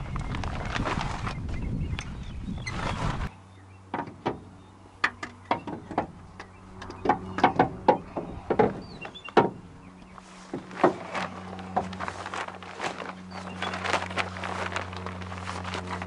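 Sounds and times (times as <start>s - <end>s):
metallic clicks and knocks: 5.0s - 9.6s.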